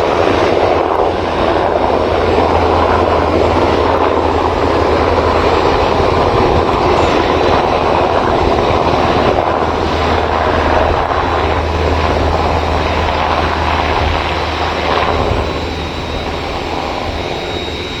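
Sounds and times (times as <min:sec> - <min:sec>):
helicopter rotor drone: 0:00.0 - 0:18.0.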